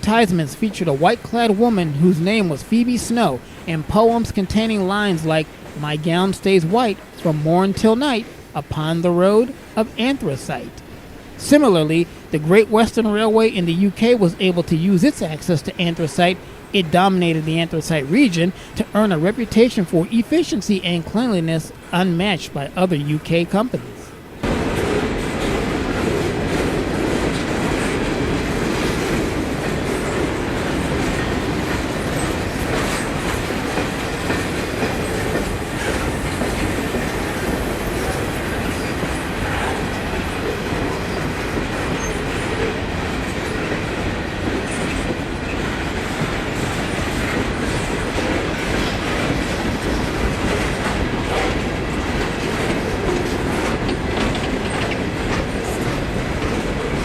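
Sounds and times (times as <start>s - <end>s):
train wheels rumbling on rails: 0.0s - 22.7s, 23.7s - 57.0s
wheels clicking over rail joints: 24.4s - 57.0s.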